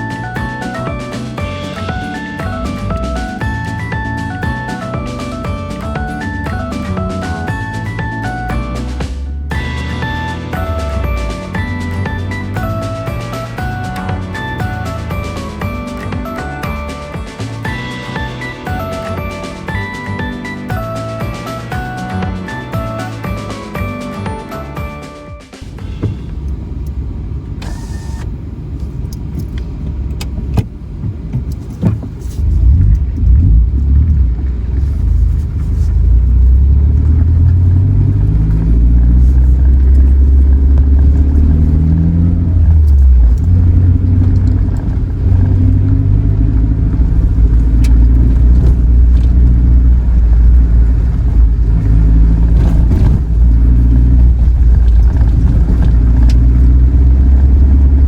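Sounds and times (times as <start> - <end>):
car engine on gravel track: 0.0 - 24.2, 25.6 - 58.0
sharp knocks: 25.6 - 26.4.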